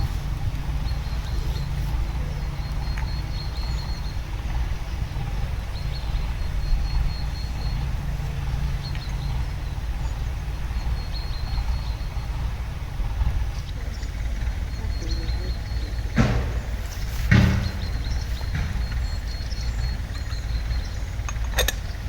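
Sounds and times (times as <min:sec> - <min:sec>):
low rumble: 0:00.0 - 0:22.0.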